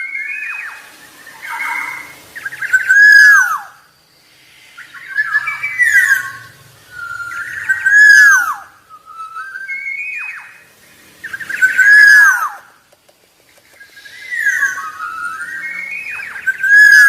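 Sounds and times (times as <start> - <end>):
bird singing fluty whistles: 0.0 - 12.8, 13.7 - 17.0.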